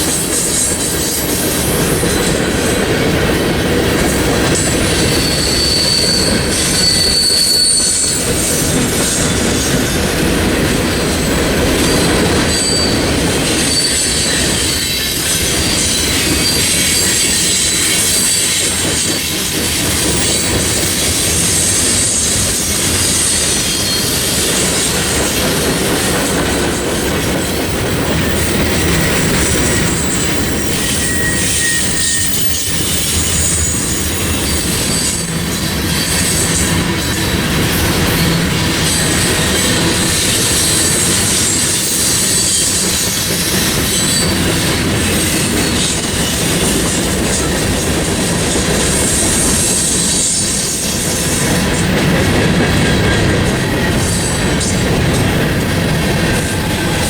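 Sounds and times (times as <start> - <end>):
train wheels rolling on rails: 0.0 - 57.0
high-pitched flange squeal: 4.6 - 9.8, 11.8 - 19.2, 28.2 - 44.6.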